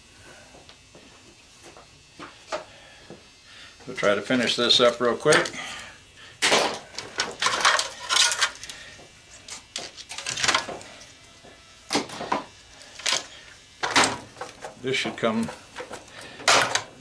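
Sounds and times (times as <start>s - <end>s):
metal tools clattering on workbench: 6.5s - 8.6s.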